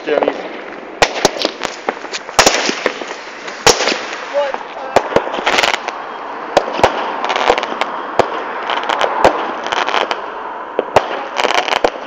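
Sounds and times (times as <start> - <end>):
firework bangs: 0.0 - 12.0
firework crackling: 0.0 - 12.0.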